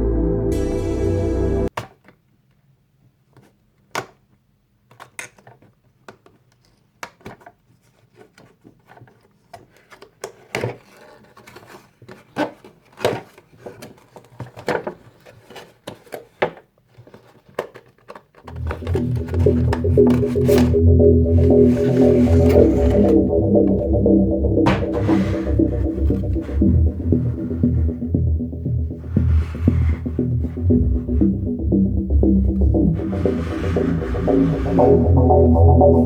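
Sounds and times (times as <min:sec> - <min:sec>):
packaging clicks and rustles: 0:05.0 - 0:18.4.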